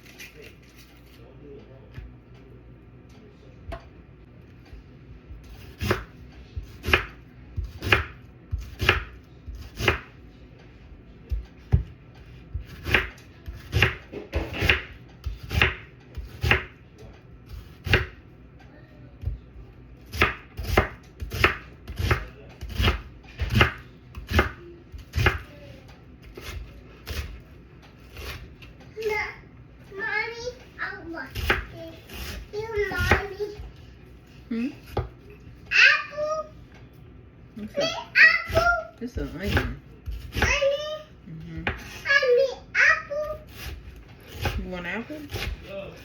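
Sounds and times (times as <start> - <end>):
knife chopping on cutting board: 5.3 - 10.2, 11.2 - 16.8, 17.4 - 18.3, 20.0 - 25.5, 26.2 - 28.7, 31.3 - 33.8, 34.8 - 35.2, 38.5 - 40.7, 41.6 - 42.1, 43.3 - 45.7.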